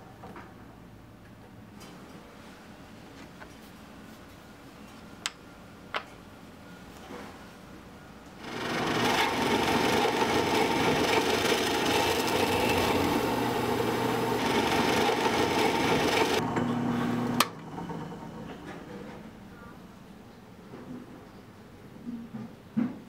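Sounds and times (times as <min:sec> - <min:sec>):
power tool grinding wood: 0:08.4 - 0:17.4.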